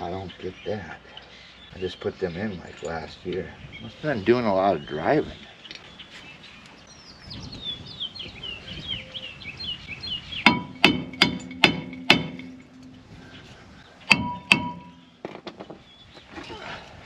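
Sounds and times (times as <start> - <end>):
hammer striking metal: 10.5 - 13.2, 14.1 - 15.2.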